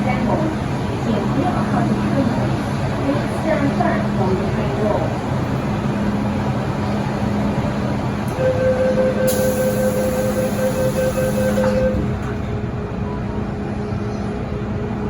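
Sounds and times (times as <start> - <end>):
train interior rumble: 0.0 - 15.0.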